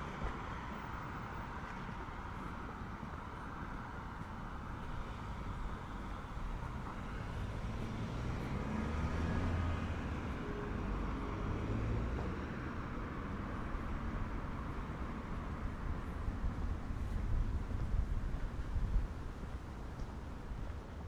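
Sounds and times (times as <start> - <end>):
city road noise: 0.0 - 21.0
vehicle passing: 7.0 - 12.2.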